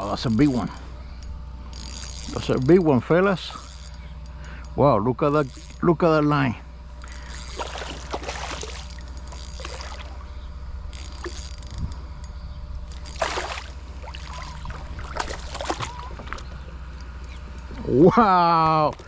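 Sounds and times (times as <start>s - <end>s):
steady low rumble: 0.0s - 19.0s
water splashing and dribbling: 7.5s - 9.0s, 9.6s - 10.2s, 13.1s - 16.4s.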